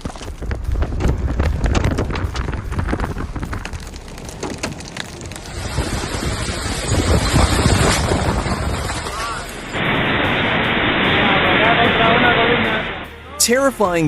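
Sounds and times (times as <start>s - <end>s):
sharp clicks and knocks: 0.0s - 5.5s
wind buffeting microphone: 0.0s - 9.1s.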